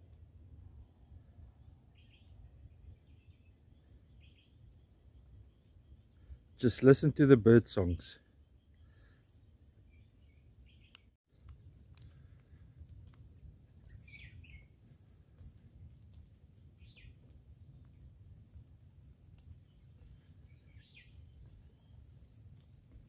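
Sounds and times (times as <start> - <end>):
faint steady high hiss: 0.0 - 23.0
bird calls with falling notes: 13.9 - 14.7, 19.6 - 22.0.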